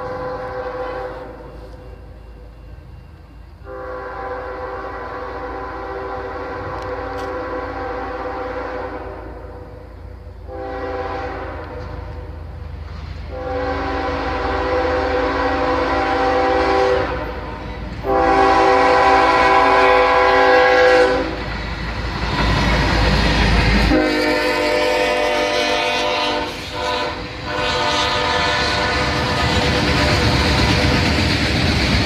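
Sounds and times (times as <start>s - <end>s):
locomotive air horn blasts: 0.0s - 1.8s, 3.6s - 12.4s, 13.3s - 21.4s, 23.9s - 30.2s
passing train rumble: 0.0s - 32.0s.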